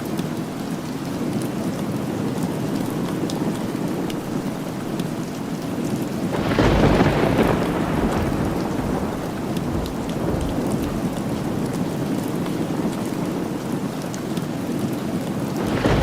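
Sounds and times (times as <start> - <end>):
steady rain: 0.0 - 16.0
thunder rumbling: 6.3 - 13.7, 15.6 - 16.0.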